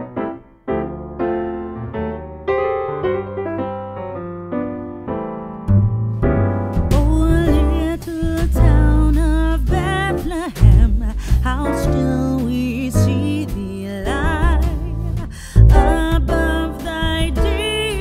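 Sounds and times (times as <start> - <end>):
piano chords: 0.0 - 18.0
deep bass and beat: 5.7 - 18.0
person singing: 6.9 - 18.0.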